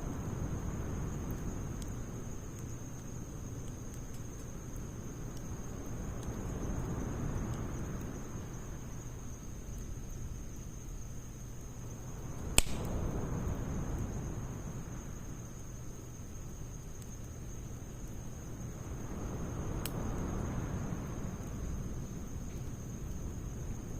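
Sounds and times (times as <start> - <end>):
faint crackles of fire: 0.0 - 23.9
fire burning: 0.0 - 23.9
sharp pop from wood: 12.6 - 12.9.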